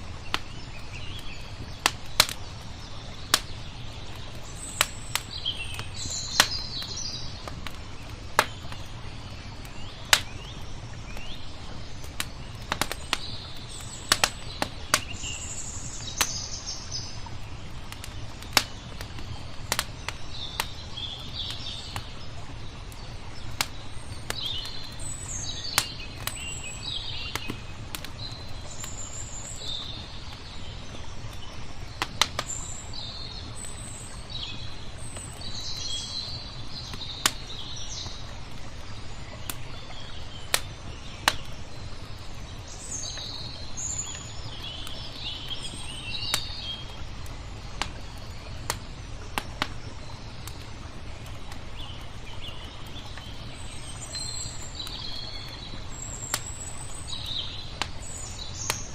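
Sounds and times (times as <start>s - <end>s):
small birds chirping: 0.0s - 58.9s
wood fire crackling and popping: 0.0s - 58.9s.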